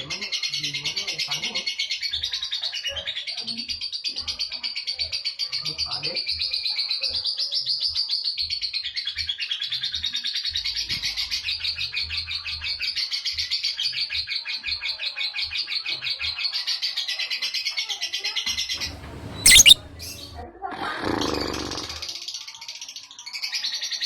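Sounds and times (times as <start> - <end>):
lovebird chattering trill: 18.9 - 20.3.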